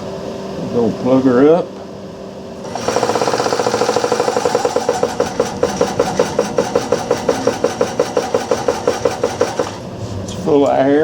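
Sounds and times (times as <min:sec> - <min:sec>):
air compressor pumping: 0:02.6 - 0:10.2.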